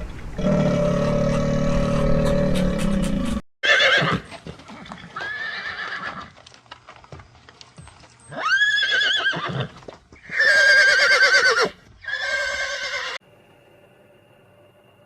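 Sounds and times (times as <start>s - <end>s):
horse whinnying: 0.4s - 6.3s, 8.3s - 13.2s.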